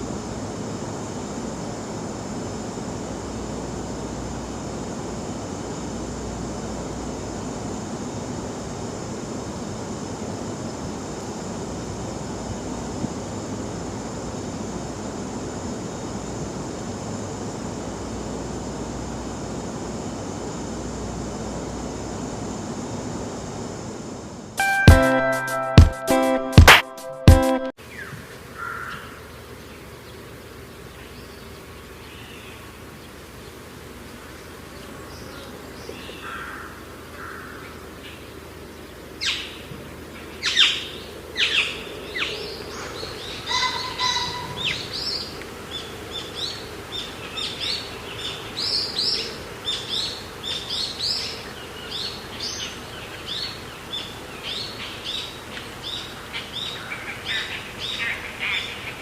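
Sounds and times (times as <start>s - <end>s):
steady background hush: 0.0s - 59.0s
birds chirping: 27.8s - 59.0s.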